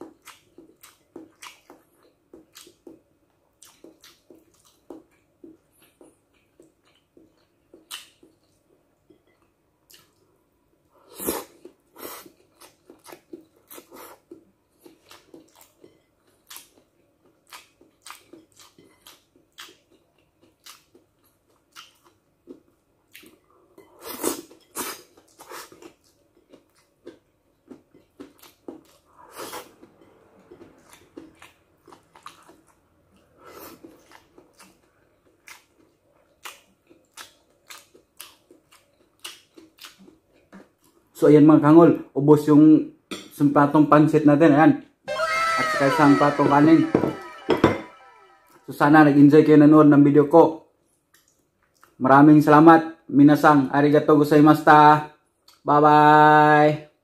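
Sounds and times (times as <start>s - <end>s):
person chewing and lip smacking: 0.0s - 10.3s, 11.2s - 41.0s, 51.1s - 52.0s.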